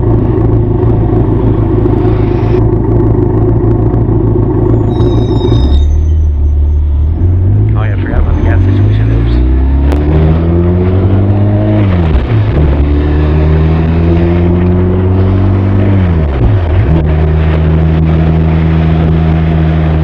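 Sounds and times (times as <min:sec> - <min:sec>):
motorcycle engine accelerating: 0:00.0 - 0:05.9, 0:06.5 - 0:20.0.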